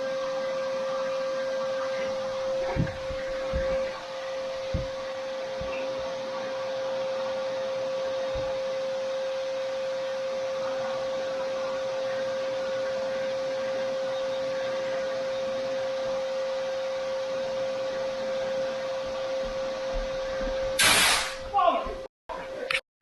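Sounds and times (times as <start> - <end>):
vacuum cleaner running: 0.0 - 22.0
soft low thumps: 2.1 - 5.8, 19.4 - 20.8.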